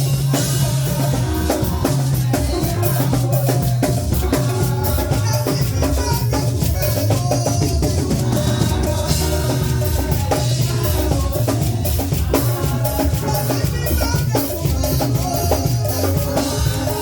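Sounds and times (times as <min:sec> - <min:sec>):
live band music: 0:00.0 - 0:17.0.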